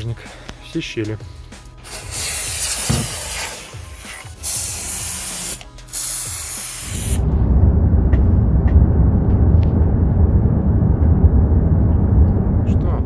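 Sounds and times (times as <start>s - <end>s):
aerosol spray hissing: 1.8s - 7.2s
steady low rumble: 6.6s - 13.0s.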